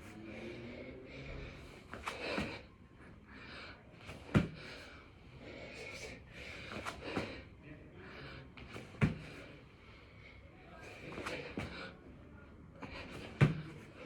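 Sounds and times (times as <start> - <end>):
man breathing hard: 0.1 - 8.5
thuds on floor: 4.3 - 4.7, 9.0 - 9.4, 13.4 - 13.7.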